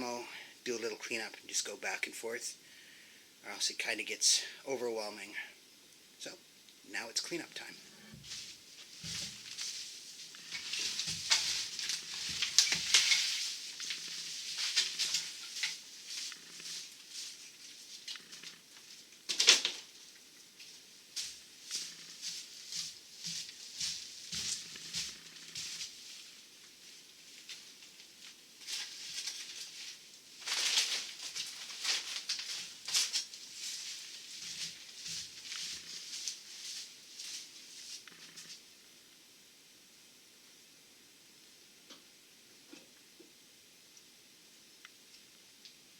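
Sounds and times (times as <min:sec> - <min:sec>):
debris scraping and rustling: 0:07.7 - 0:38.6.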